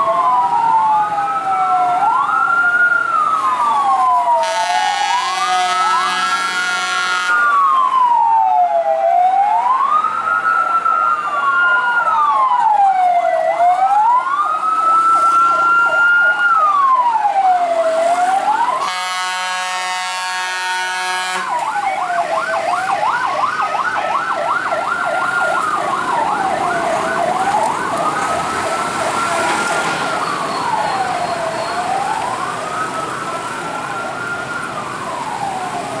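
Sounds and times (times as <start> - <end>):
fire truck sirens wailing: 0.0 - 36.0
steady horn tone: 4.4 - 7.5, 18.8 - 21.6.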